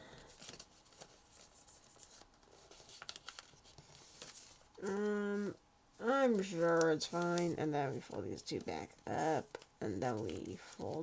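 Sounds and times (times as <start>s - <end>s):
paper crinkling and rustling: 0.0s - 11.0s
person humming: 4.8s - 5.6s.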